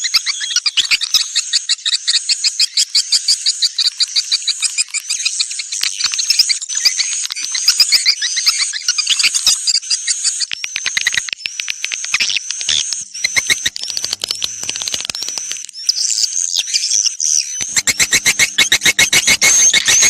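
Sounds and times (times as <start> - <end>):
rapid rattling clicks: 12.9 - 15.8, 17.6 - 20.0
high chirping bird twitters: 13.3 - 15.7, 17.6 - 20.0.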